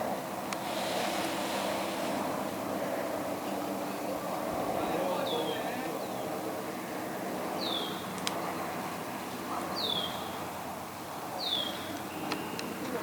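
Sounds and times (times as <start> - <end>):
background hiss: 0.0 - 3.5.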